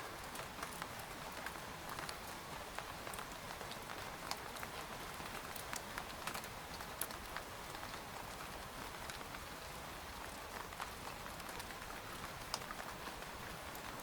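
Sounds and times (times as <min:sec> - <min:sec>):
rain hissing on a tent: 0:00.0 - 0:14.0
raindrops tapping fabric: 0:10.2 - 0:14.0.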